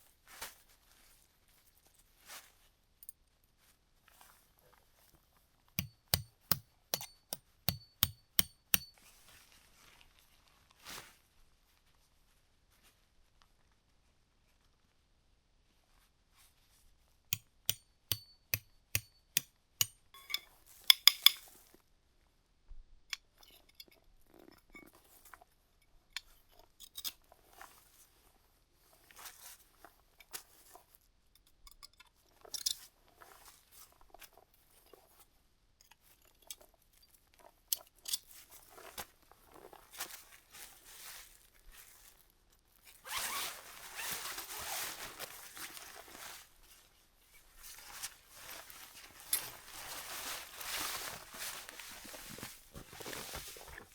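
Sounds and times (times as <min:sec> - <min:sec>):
crunching and rustling: 0:38.4 - 0:53.9.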